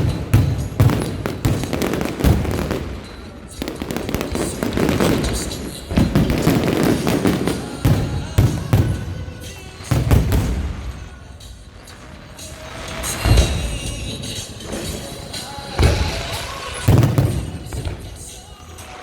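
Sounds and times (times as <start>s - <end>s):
fireworks bangs and booms: 0.0s - 19.0s
fireworks crackling: 0.0s - 19.0s
music: 0.0s - 19.0s.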